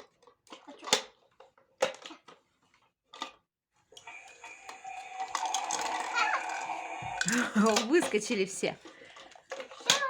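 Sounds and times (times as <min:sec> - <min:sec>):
toy washing machine motor whining: 0:03.9 - 0:10.0.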